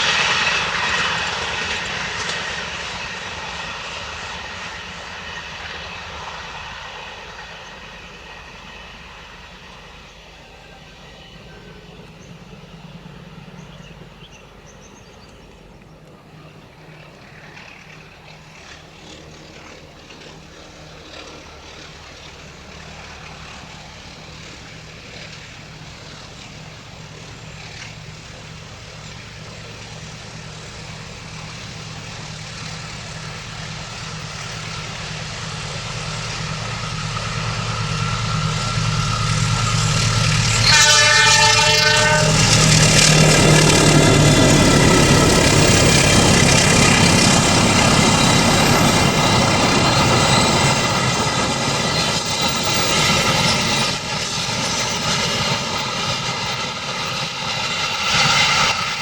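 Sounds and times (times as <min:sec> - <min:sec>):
diesel locomotive engine hum: 0:00.0 - 0:59.0
rumble of train passing: 0:00.0 - 0:59.0
train horn blast: 0:38.1 - 0:44.8.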